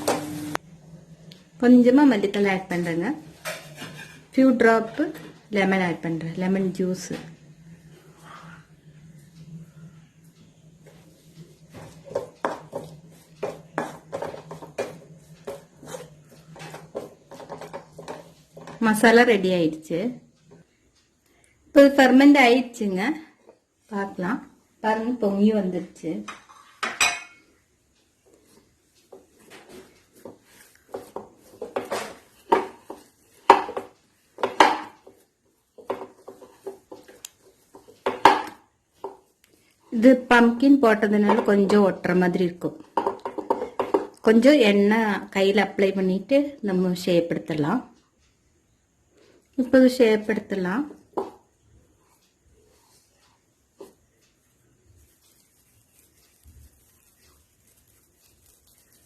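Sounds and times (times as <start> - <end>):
spoon scraping in a pan: 2.7 - 5.3, 10.8 - 19.1, 26.2 - 27.6, 28.3 - 39.3
steady low hum: 4.2 - 26.0.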